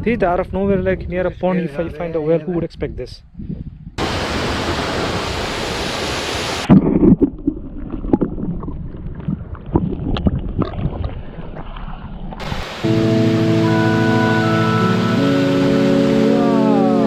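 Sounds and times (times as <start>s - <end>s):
wind buffeting microphone: 0.0s - 4.0s
falling water rushing: 4.0s - 6.7s, 12.4s - 17.0s.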